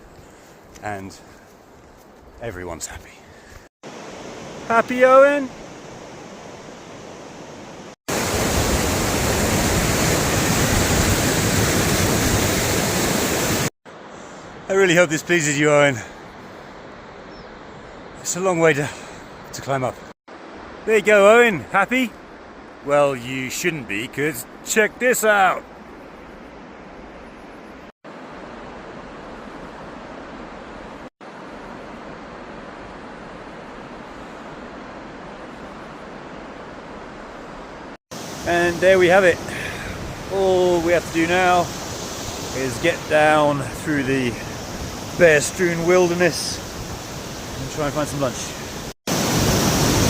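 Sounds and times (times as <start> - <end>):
faint rush of water: 0.0 - 50.0
waterfall roaring: 8.1 - 13.7, 38.2 - 50.0.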